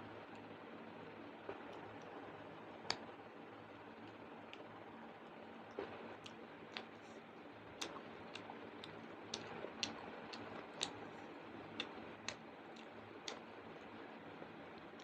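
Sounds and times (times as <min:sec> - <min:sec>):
chewing clicks and smacks: 0:05.7 - 0:07.1, 0:07.7 - 0:14.0.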